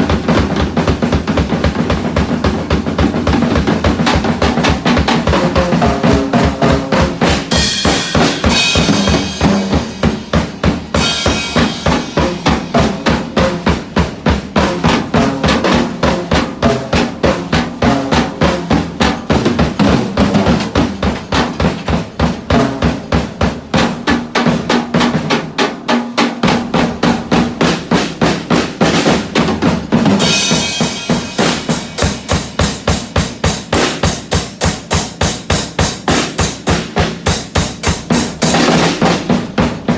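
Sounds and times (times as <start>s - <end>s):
drum kit fast beat: 0.0s - 39.9s
cymbals washing: 3.6s - 14.7s, 28.8s - 39.9s.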